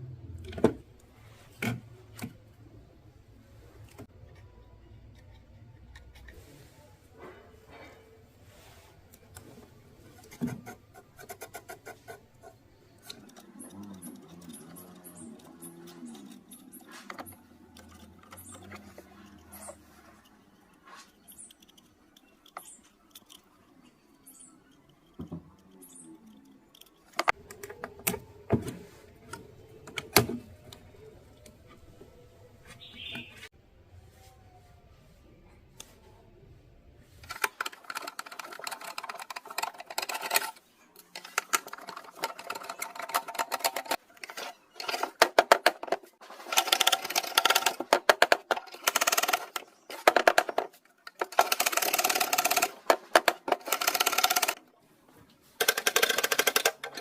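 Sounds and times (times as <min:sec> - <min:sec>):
tools handled on a workbench: 0:37.2 - 0:54.6.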